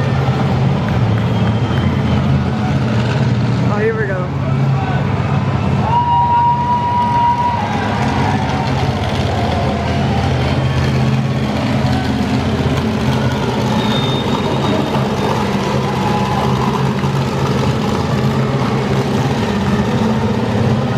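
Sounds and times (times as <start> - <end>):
truck engine idling: 0.0 - 5.9, 6.5 - 20.9.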